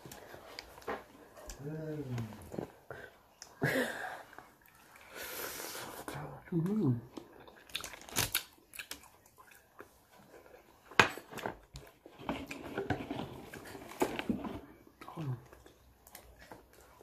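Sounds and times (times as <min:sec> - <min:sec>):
chewing fried chicken: 0:06.6 - 0:10.9, 0:14.9 - 0:17.0.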